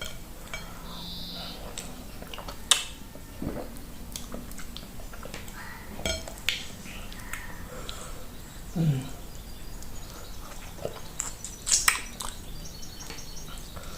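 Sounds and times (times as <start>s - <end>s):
person chewing wet food: 1.6s - 13.9s
wet mouth smacks: 11.2s - 12.4s.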